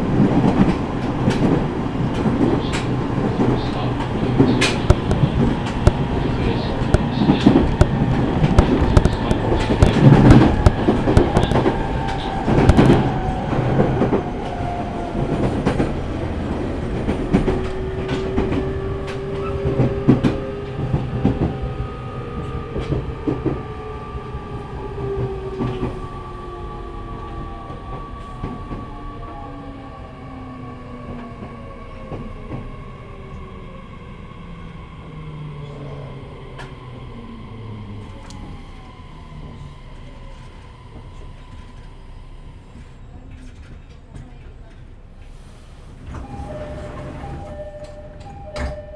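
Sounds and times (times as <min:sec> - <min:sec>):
wheel clatter over rail joints: 0:00.3 - 0:14.2
train traction motor whine: 0:46.1 - 0:48.9.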